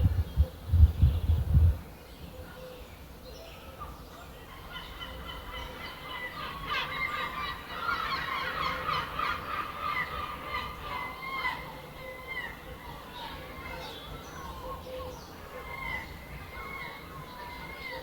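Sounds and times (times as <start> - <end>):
wind buffeting microphone: 0.0 - 1.9.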